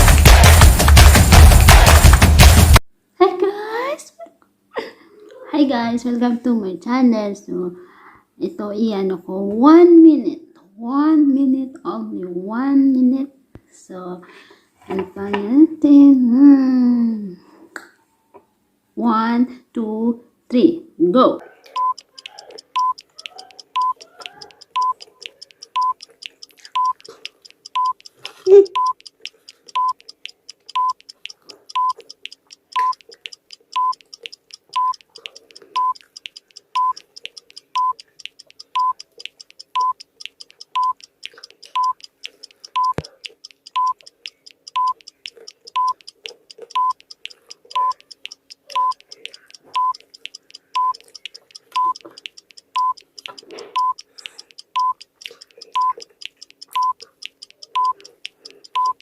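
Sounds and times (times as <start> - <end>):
faint ticks: 21.5 - 59.0
timer beeping: 21.7 - 59.0.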